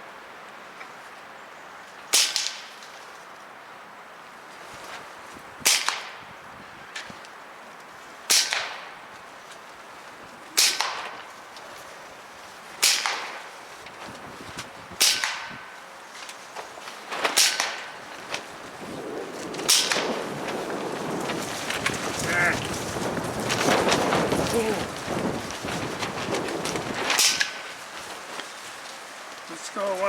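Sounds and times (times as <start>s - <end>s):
air rifle shots: 5.6s - 6.2s, 8.3s - 9.0s, 10.6s - 11.2s, 12.8s - 13.5s, 15.0s - 15.7s, 17.2s - 18.0s, 19.6s - 20.3s, 27.0s - 27.7s.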